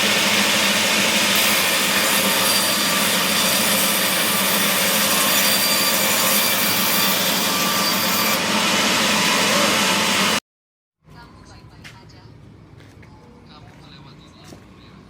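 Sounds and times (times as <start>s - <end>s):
power saw cutting wood: 0.0s - 10.4s.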